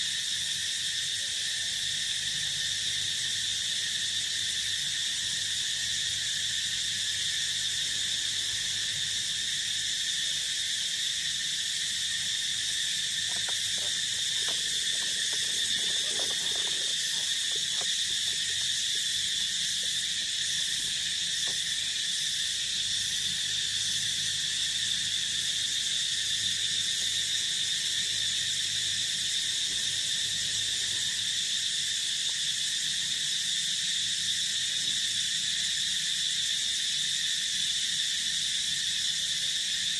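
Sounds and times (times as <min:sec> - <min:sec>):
crickets and insects chirping: 0:00.0 - 0:39.9.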